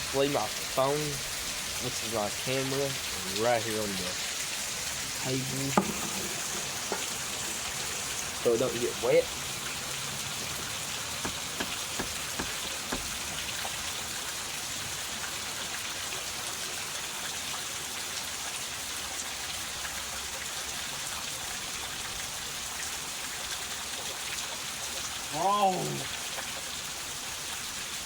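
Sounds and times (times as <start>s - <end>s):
heavy rain falling: 0.0s - 17.0s, 25.1s - 26.3s
light knocks: 5.7s - 7.2s, 11.2s - 13.2s.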